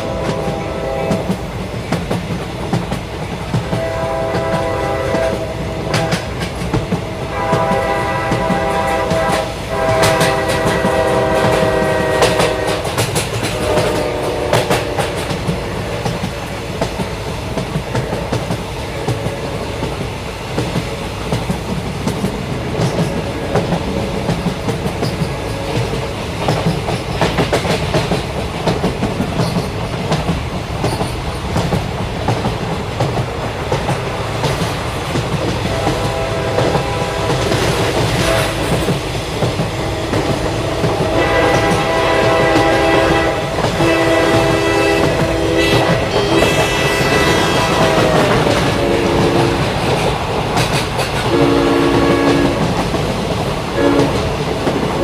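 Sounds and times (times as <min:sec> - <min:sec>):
train horn chord: 0:00.0 - 0:01.4, 0:03.7 - 0:06.4, 0:07.2 - 0:15.3, 0:35.7 - 0:38.9, 0:39.8 - 0:49.8, 0:51.3 - 0:52.7, 0:53.8 - 0:54.2
train wheels clattering: 0:00.0 - 0:55.0.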